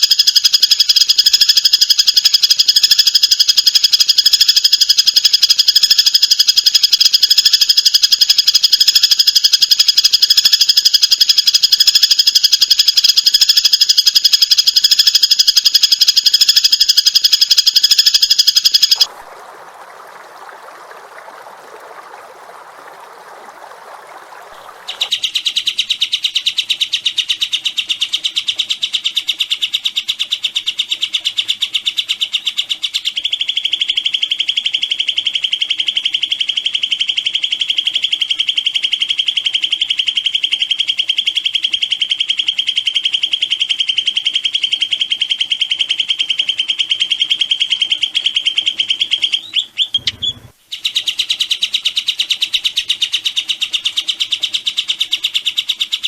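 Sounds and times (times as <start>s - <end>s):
songbird rapid trill: 0.0s - 19.1s.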